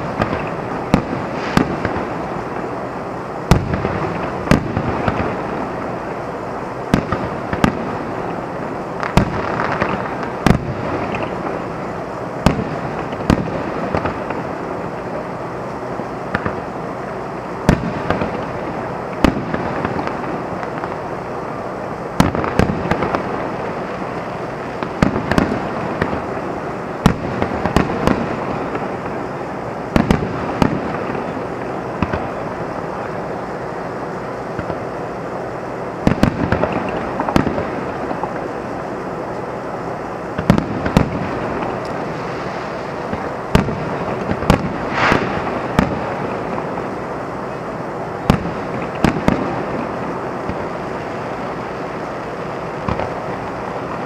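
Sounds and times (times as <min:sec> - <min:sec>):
background hiss: 0:00.0 - 0:54.0
fireworks bangs: 0:00.0 - 0:54.0
fireworks crackle: 0:00.0 - 0:54.0.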